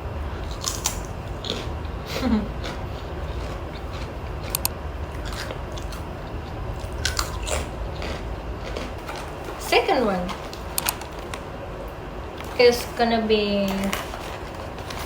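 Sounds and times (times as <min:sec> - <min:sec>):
person chewing crunchy cracker: 0:00.4 - 0:11.5.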